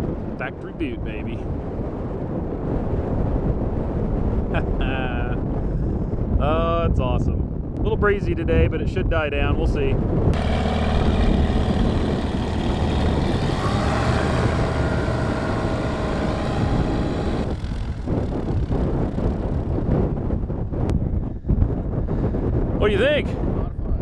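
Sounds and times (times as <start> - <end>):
wind rushing over microphone: 0.0 - 24.0
propeller aircraft engine: 10.4 - 20.8.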